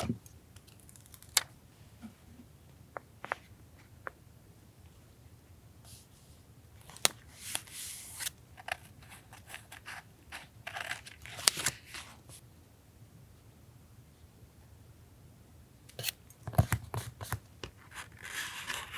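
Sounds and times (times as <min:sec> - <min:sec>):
paper rustling: 0:16.0 - 0:18.9.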